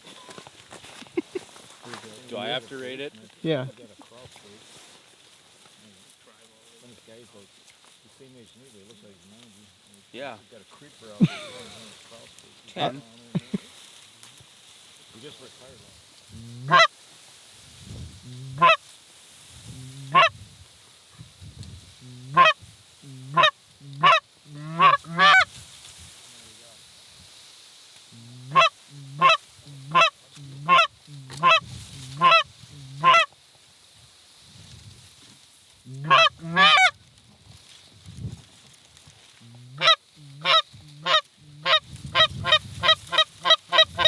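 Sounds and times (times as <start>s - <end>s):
goose honks: 16.4s - 16.9s, 18.3s - 18.8s, 19.8s - 20.4s, 22.2s - 25.5s, 28.4s - 33.3s, 35.9s - 37.0s, 39.7s - 44.0s.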